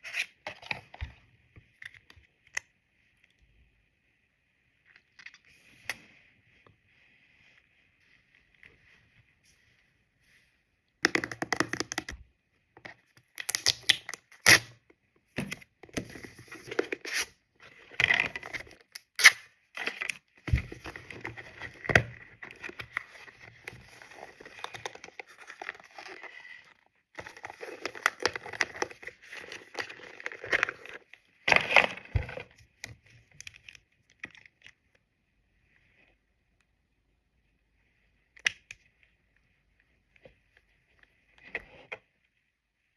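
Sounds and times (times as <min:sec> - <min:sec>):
handling plastic containers: 0:19.8 - 0:33.7.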